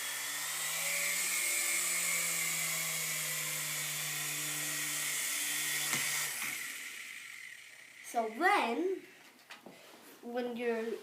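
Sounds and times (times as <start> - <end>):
toy helicopter rotors whining: 0.0 - 9.4.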